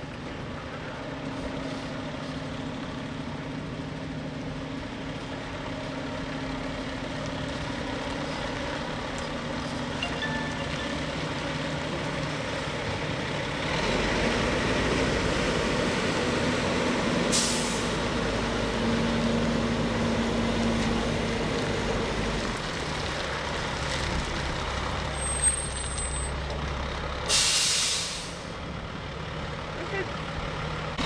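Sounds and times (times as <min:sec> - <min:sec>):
diesel engine running: 0:00.0 - 0:31.0
air brake hiss: 0:17.3 - 0:18.0, 0:27.3 - 0:28.6.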